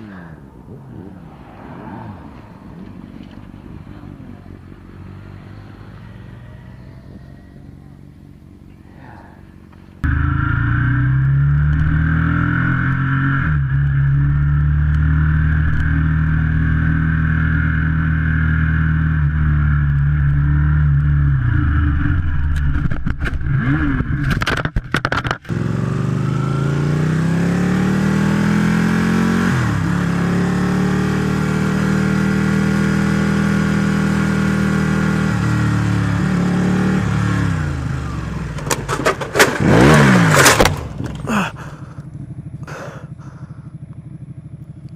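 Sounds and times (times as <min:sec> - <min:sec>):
motorcycle engine revving: 0:09.6 - 0:44.9.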